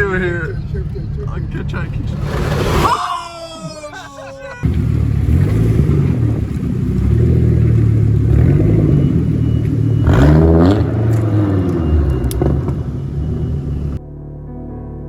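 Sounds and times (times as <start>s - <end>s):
car engine revving: 1.8s - 3.0s, 4.6s - 14.0s.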